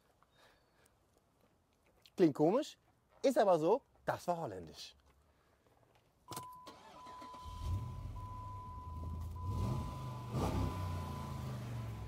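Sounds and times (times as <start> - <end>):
ignition click: 6.3 - 9.4
high warning beep: 6.3 - 12.0
car engine starting and idling: 6.5 - 12.0.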